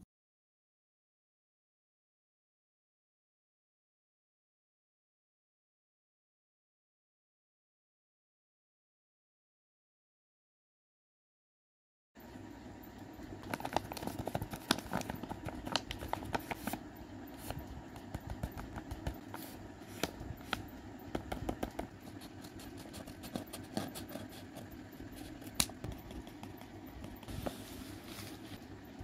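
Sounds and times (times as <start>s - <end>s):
paper rustling and crinkling: 13.4s - 16.8s, 25.2s - 28.6s.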